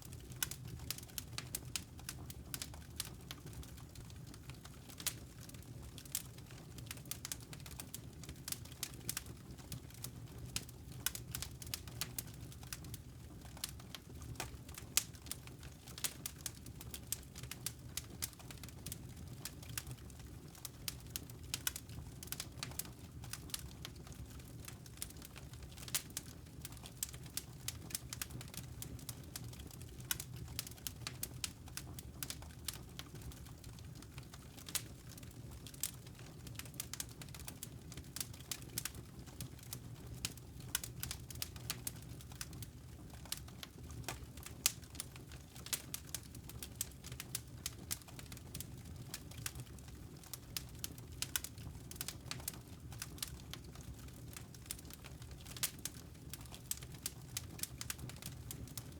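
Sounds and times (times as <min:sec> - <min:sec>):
fire snaps and pops: 0:00.0 - 0:58.9
low rumble of burning: 0:00.0 - 0:58.9.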